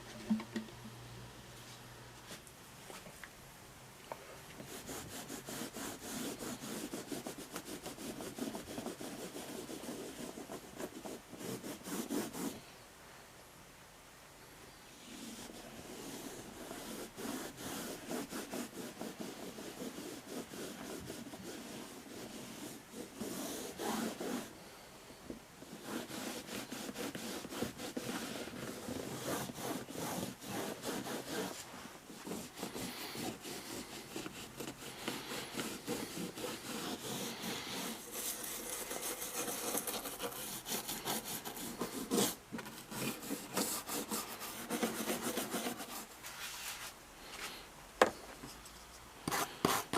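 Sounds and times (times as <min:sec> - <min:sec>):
fast rubbing strokes: 0:04.7 - 0:12.6, 0:15.1 - 0:24.6, 0:25.7 - 0:47.0.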